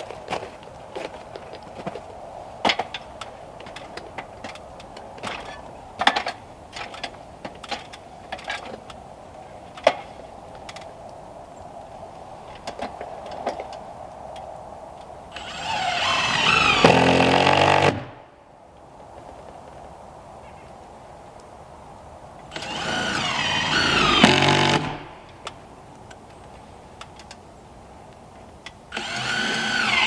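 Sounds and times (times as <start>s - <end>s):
small power tool motor spinning up: 15.4s - 17.9s, 22.5s - 25.4s, 28.9s - 30.0s.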